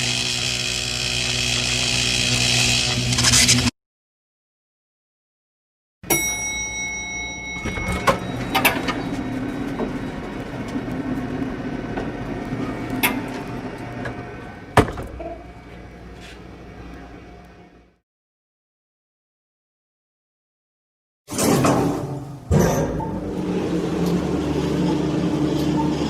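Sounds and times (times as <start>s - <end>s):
mechanical rumble: 7.6s - 18.0s, 22.4s - 26.0s.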